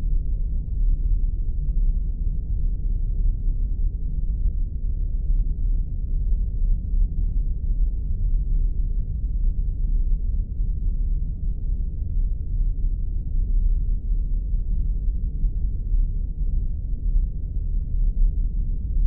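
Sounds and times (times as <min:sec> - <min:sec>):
deep engine-like rumble: 0:00.0 - 0:19.0.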